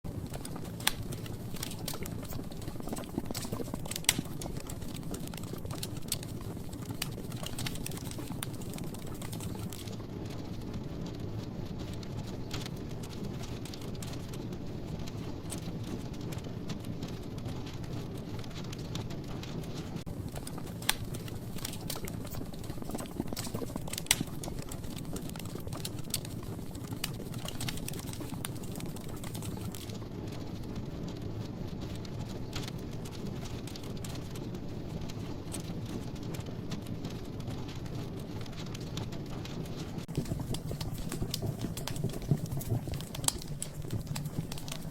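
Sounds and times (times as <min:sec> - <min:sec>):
logs crackling and popping: 0:00.0 - 0:44.9
fire rumbling: 0:00.1 - 0:44.9.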